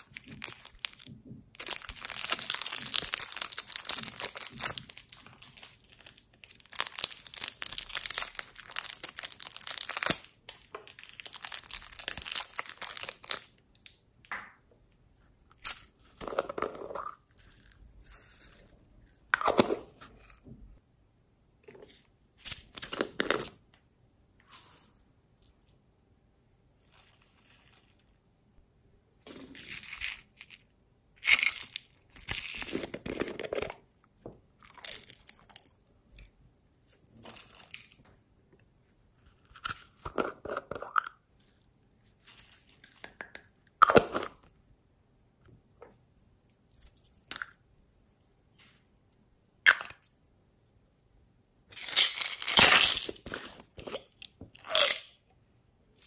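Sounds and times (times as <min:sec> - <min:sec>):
crunchy slime crackling: 0:01.6 - 0:13.5.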